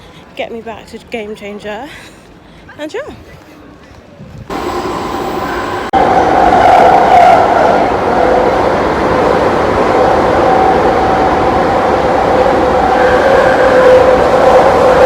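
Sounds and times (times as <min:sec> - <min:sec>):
train rumbling with whine: 0:04.5 - 0:15.0.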